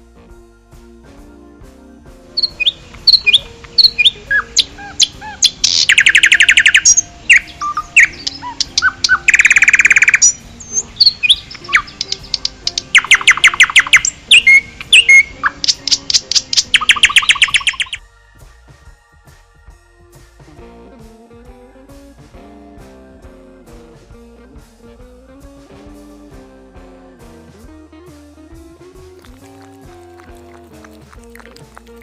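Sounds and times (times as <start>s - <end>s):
songbird singing: 2.3s - 18.3s, 28.4s - 32.0s.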